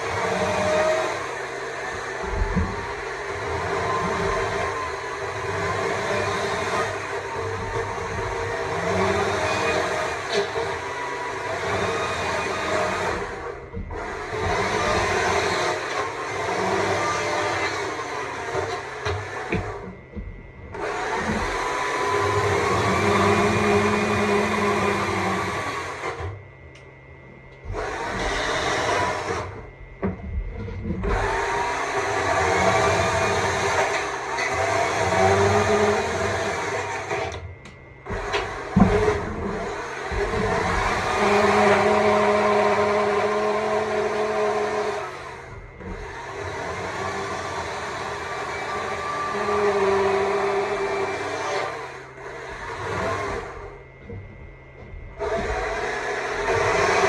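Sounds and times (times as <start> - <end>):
electric chainsaw cutting wood: 0.0 - 20.0, 20.7 - 26.4, 27.6 - 29.7, 30.8 - 37.5, 38.1 - 54.2, 54.8 - 57.0.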